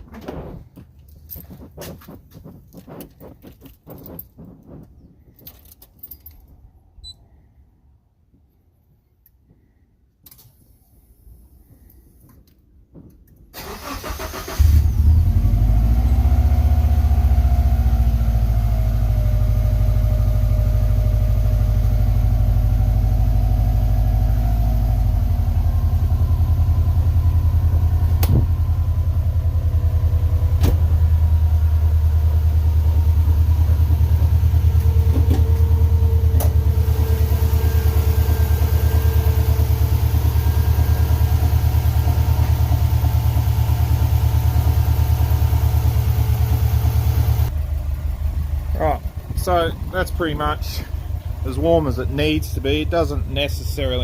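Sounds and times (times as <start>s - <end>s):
engine starter cranking: 13.5s - 16.2s
car engine idling: 13.6s - 54.0s.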